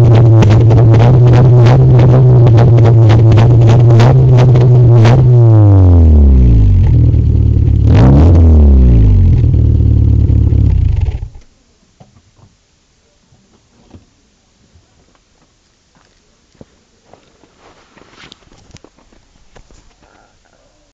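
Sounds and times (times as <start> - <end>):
car engine revving and idling: 0.0 - 11.4.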